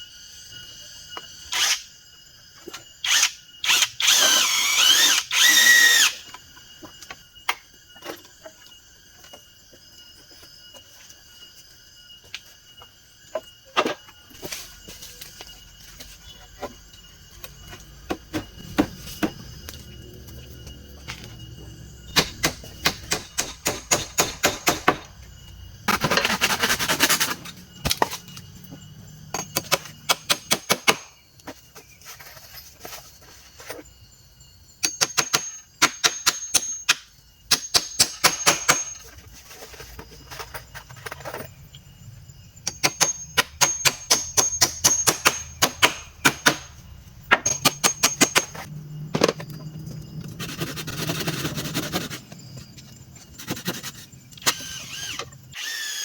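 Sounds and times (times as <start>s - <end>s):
rapid sharp knocks: 22.2s - 25.0s.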